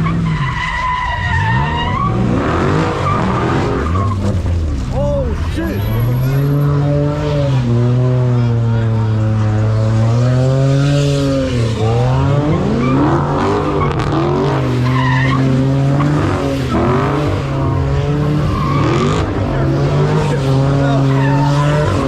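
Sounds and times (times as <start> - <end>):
car engine at high revs: 0.0 - 22.0
tyres squealing: 20.2 - 22.0.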